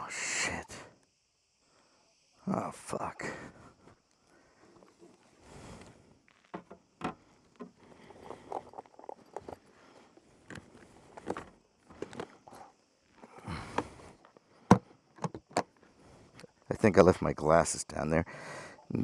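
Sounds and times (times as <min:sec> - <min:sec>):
handling clicks and knocks: 0:06.4 - 0:12.7, 0:13.7 - 0:15.8.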